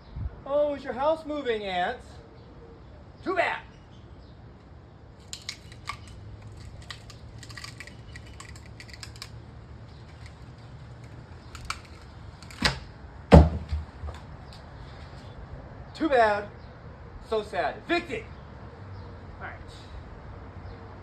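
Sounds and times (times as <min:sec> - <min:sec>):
rotten wood cracking and snapping: 0:05.2 - 0:12.8
heavy thumps: 0:12.6 - 0:14.2.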